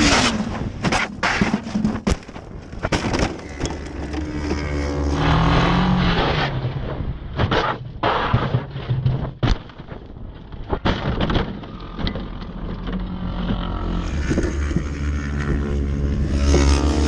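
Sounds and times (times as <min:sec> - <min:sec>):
race motorcycle engine: 0:03.0 - 0:07.3, 0:12.0 - 0:17.0.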